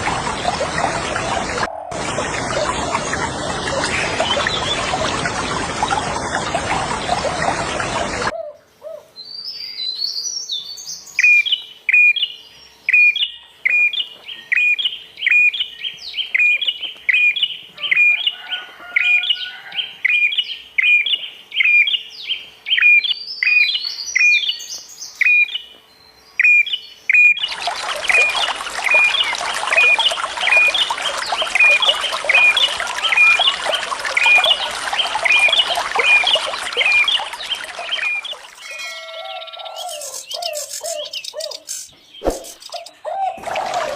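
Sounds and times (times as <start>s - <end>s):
rushing water: 0.0s - 8.3s, 27.4s - 39.2s, 43.4s - 43.9s.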